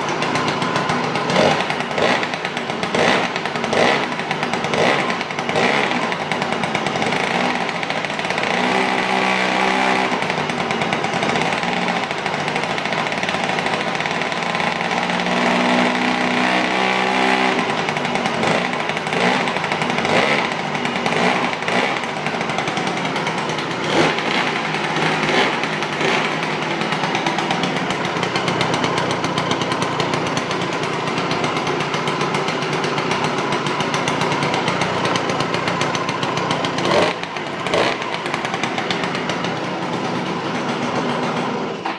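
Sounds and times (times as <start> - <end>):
scooter engine revving: 0.0 - 41.9.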